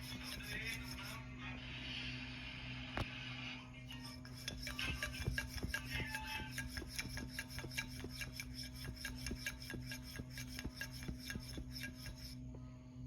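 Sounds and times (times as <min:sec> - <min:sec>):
rhythmic rasping strokes: 0:00.0 - 0:01.2, 0:03.9 - 0:12.5
steady hum: 0:00.0 - 0:13.0.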